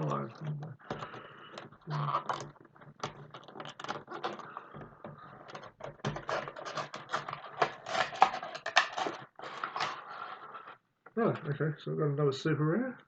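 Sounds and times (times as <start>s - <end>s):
plastic figures clicking and tapping: 0.0s - 10.0s.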